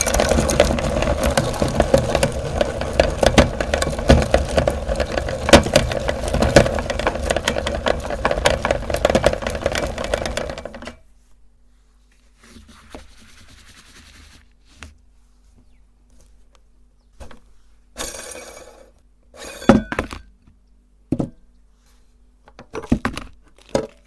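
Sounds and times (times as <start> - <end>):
electric meat grinder running: 0.0 - 10.8
hard material cracking and rattling: 0.0 - 11.0.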